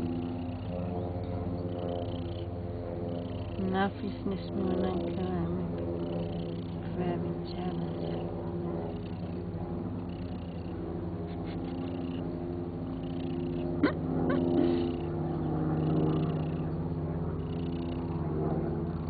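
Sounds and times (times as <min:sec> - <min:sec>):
cat purring: 0:00.0 - 0:00.7, 0:03.1 - 0:15.1, 0:15.8 - 0:16.7, 0:17.4 - 0:18.1.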